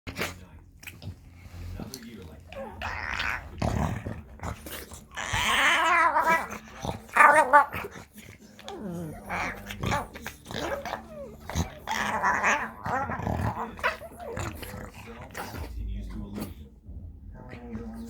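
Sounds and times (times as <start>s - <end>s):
dogs growling: 0.1s - 18.0s
dogs yipping and whining: 4.6s - 15.6s.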